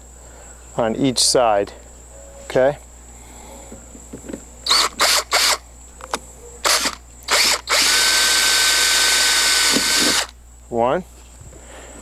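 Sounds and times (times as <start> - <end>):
electric drill whining: 4.6 - 5.6, 6.6 - 10.4.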